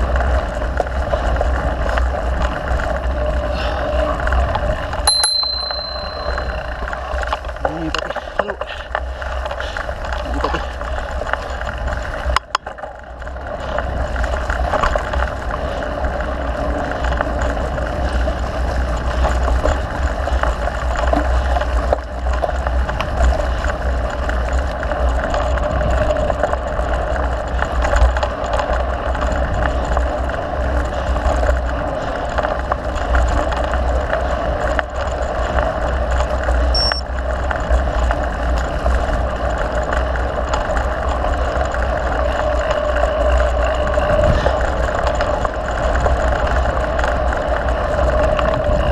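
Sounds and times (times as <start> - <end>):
bike rattling on dirt trail: 0.0 - 48.9
wind on microphone: 41.8 - 48.9.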